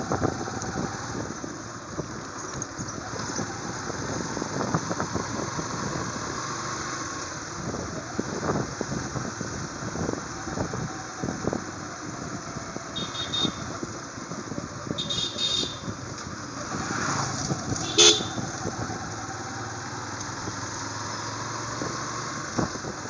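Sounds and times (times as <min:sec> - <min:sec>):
motorcycle road noise: 0:00.0 - 0:23.0
wind buffeting: 0:00.0 - 0:23.0
high horn beep: 0:13.0 - 0:13.7, 0:15.0 - 0:16.0, 0:17.8 - 0:18.5.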